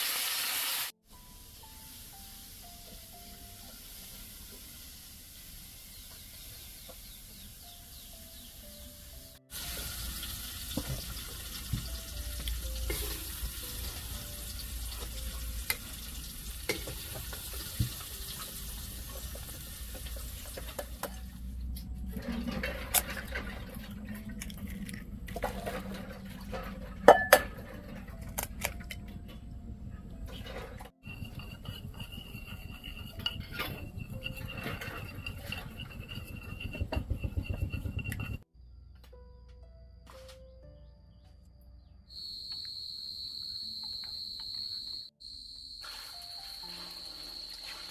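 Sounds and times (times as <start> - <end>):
utensils clinking and scraping: 20.0 - 29.5, 30.2 - 38.4.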